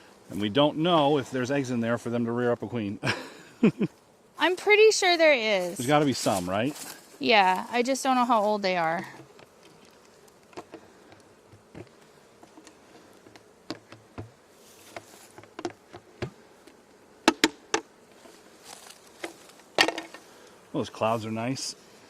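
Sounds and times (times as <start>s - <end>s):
honeybees buzzing: 0.0s - 22.0s
hive parts clicking and knocking: 9.1s - 18.3s, 19.1s - 20.3s.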